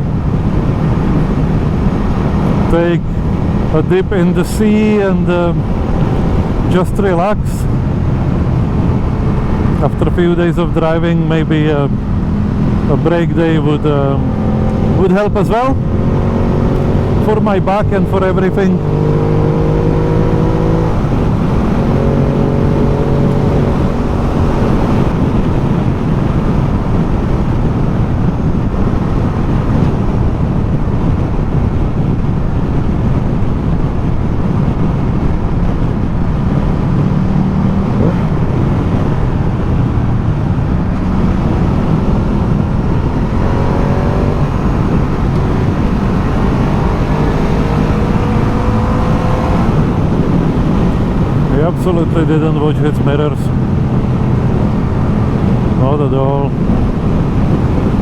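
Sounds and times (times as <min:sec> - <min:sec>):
motorcycle engine running: 0:00.0 - 0:58.0
wind rush: 0:00.0 - 0:58.0.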